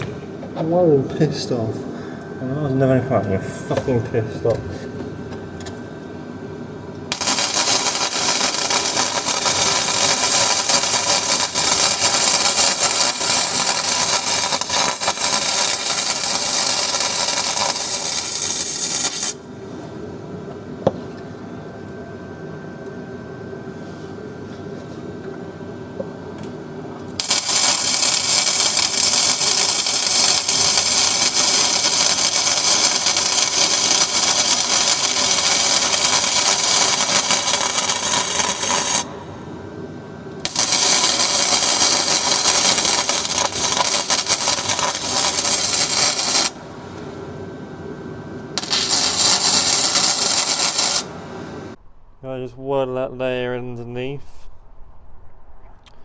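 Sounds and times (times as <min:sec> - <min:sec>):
welding arc crackling: 0:07.1 - 0:19.4, 0:27.2 - 0:39.1, 0:40.4 - 0:46.6, 0:48.6 - 0:51.2.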